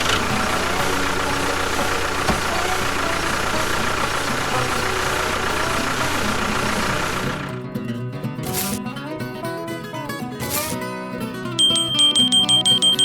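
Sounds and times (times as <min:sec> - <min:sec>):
engine running steadily: 0:00.0 - 0:07.7, 0:08.4 - 0:08.8.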